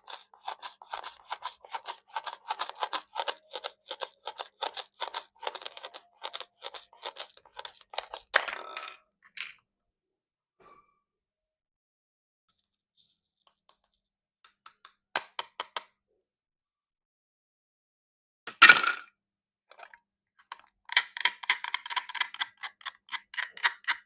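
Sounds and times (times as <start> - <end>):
cutting through plastic: 0.0 - 8.4.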